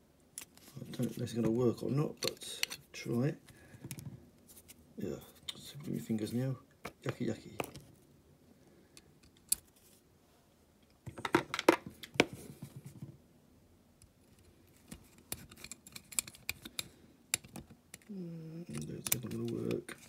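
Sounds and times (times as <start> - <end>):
metal parts and tools clicking: 2.2 - 2.9, 15.2 - 18.1.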